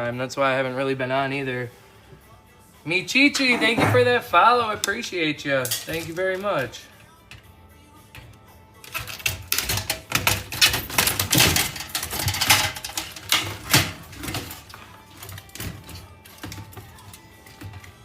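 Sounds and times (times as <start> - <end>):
parts clicking and clattering: 5.6 - 7.5, 8.1 - 18.0.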